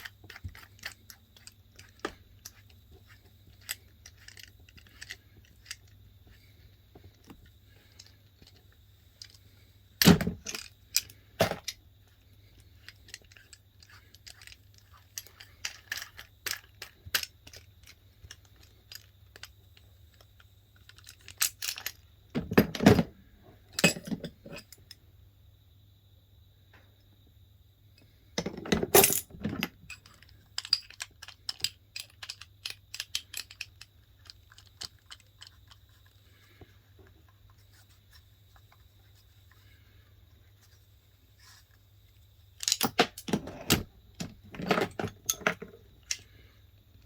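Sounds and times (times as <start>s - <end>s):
metal tools clinking: 23.8s - 24.9s, 28.7s - 35.5s, 42.6s - 46.2s.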